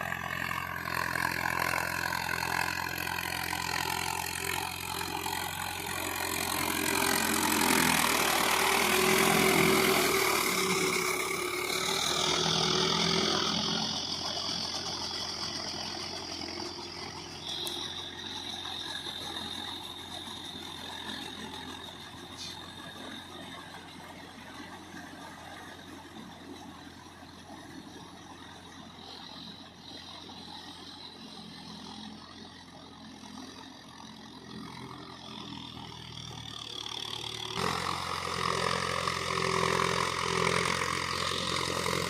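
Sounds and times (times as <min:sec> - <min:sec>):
tractor diesel engine under load: 0:00.0 - 0:42.0.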